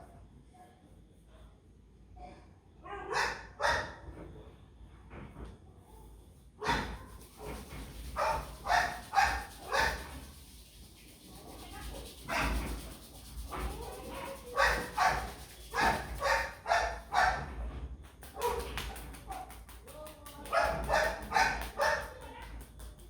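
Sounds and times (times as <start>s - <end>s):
dog barking: 2.8s - 4.0s, 6.6s - 10.2s, 13.8s - 17.5s, 20.5s - 22.3s.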